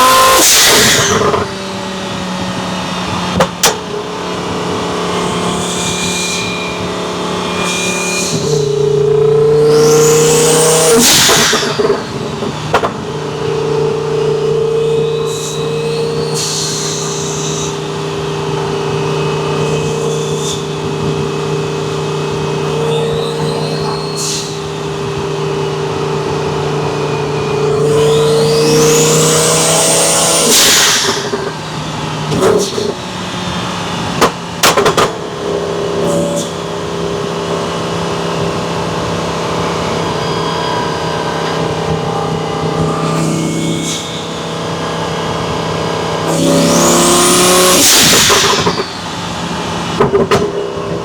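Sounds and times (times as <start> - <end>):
sports car engine cruising: 0.0 - 51.0
high turbo whistle: 4.5 - 34.1, 38.8 - 50.0.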